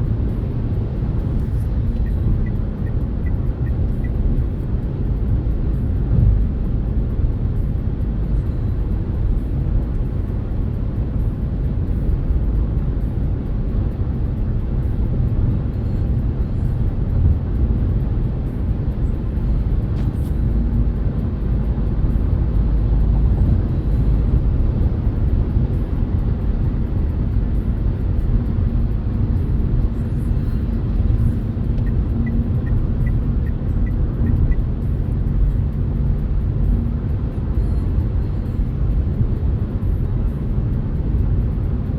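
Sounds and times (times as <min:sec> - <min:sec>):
road and tyre rumble: 0:00.0 - 0:41.9.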